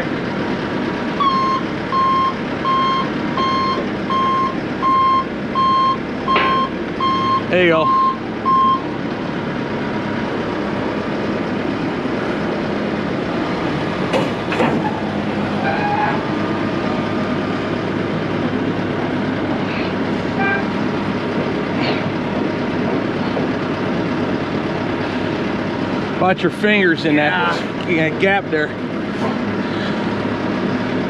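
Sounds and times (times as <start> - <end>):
heavy equipment engine running: 0.0 - 31.0
sharp knocks: 14.1 - 14.9.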